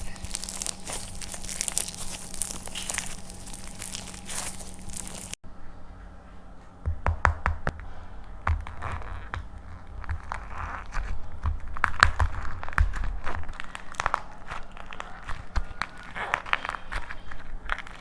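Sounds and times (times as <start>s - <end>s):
dried clay cracking and crushing: 0.0s - 5.4s, 6.8s - 18.0s.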